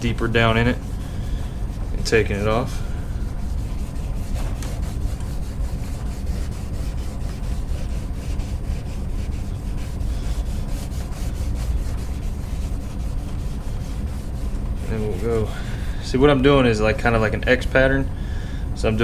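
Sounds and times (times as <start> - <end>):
abrasive pad scrubbing wet plastic: 0.0 - 15.5.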